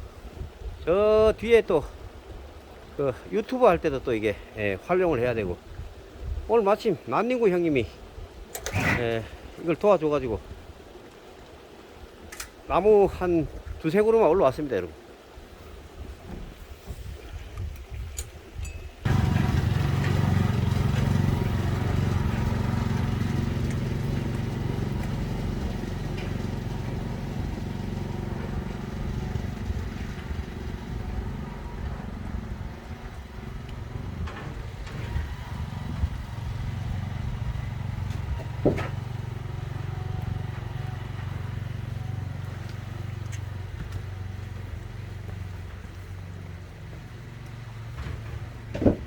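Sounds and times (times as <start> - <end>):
truck engine running: 19.0 - 49.0.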